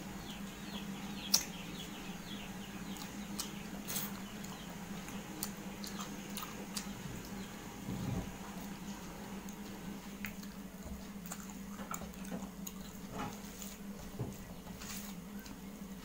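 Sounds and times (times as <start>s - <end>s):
low steady hum: 0.0s - 16.0s
person chewing food: 2.9s - 7.5s, 9.4s - 13.9s.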